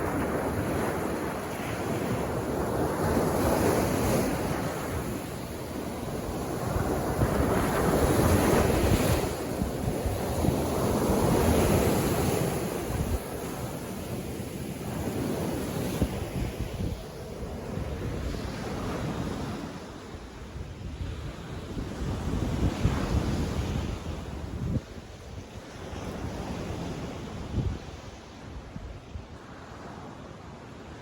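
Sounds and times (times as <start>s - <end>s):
sea waves breaking on beach: 0.0s - 20.3s.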